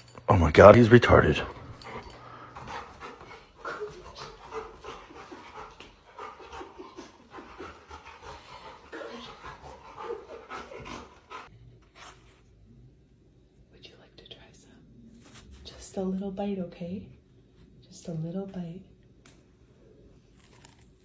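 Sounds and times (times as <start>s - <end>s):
dog panting: 1.4s - 11.5s.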